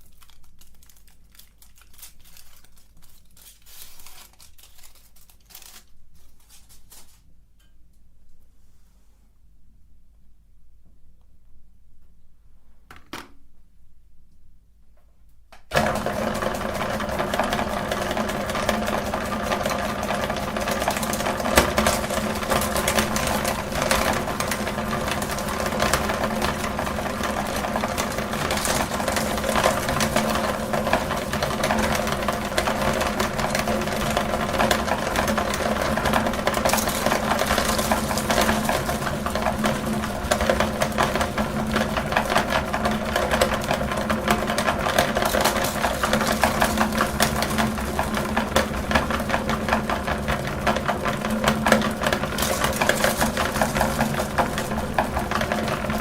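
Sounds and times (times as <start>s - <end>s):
electric meat grinder running: 15.7s - 56.0s.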